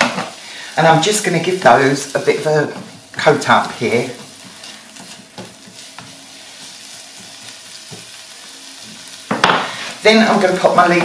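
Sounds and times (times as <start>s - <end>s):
mushrooms sizzling in a wok: 0.0s - 11.0s
spatula tapping wok: 4.1s - 6.2s.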